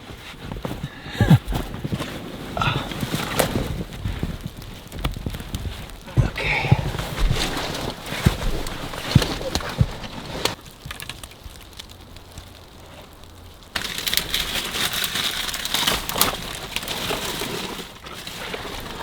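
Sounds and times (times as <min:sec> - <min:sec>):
rustling and crunching handling: 0:00.0 - 0:19.0.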